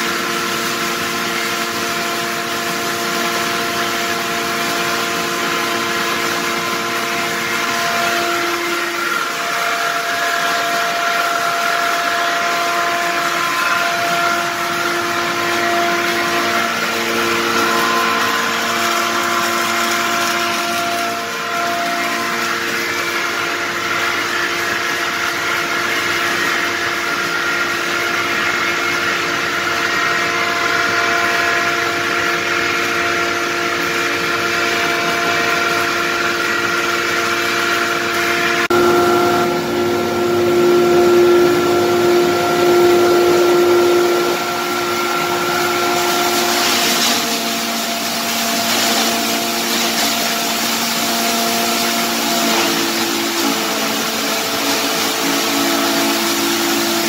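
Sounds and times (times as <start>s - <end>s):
hammer mill running: 0.0s - 57.0s
mill whine: 0.0s - 57.0s.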